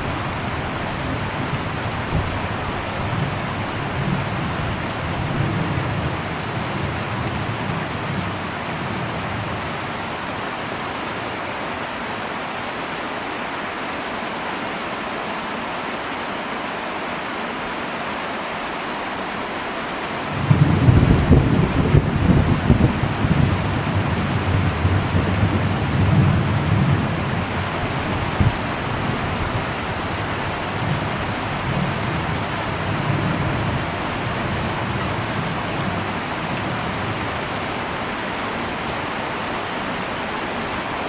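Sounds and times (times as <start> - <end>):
thunder rumbling: 0.0 - 9.9, 20.3 - 38.4
heavy rain on metal roof: 0.0 - 41.0.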